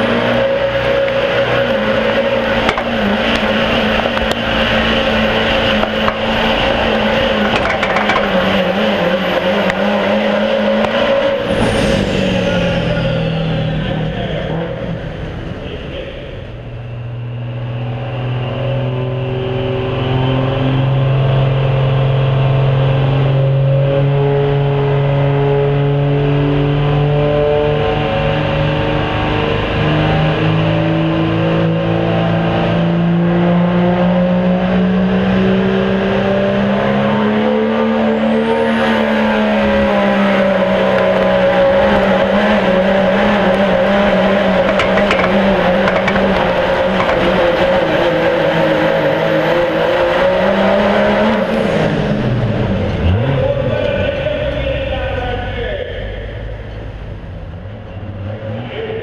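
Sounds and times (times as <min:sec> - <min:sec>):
diesel truck engine under heavy load: 0:00.0 - 0:23.9, 0:38.2 - 0:59.0.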